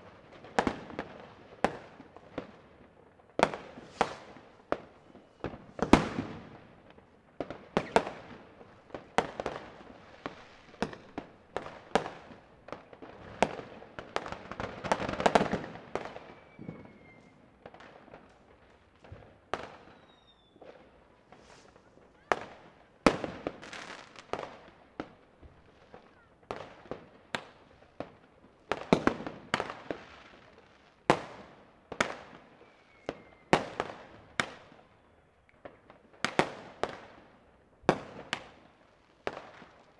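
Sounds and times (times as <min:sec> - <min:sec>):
firecrackers crackling: 0:00.0 - 0:35.0
fireworks banging with echo: 0:03.4 - 0:30.5
faint short whistles: 0:16.2 - 0:17.5, 0:19.9 - 0:20.7, 0:32.6 - 0:33.5.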